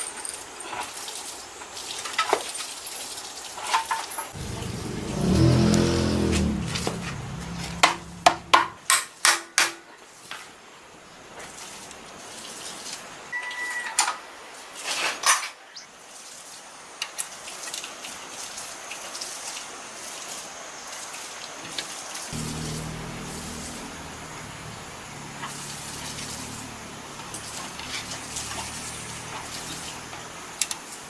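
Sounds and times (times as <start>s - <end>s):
low hum: 4.4s - 8.8s, 22.4s - 27.8s.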